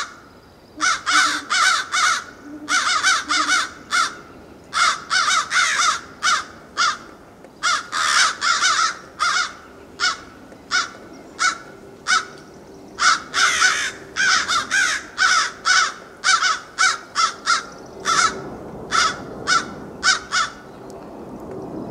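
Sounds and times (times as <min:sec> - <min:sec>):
bird cawing: 0:00.8 - 0:20.7.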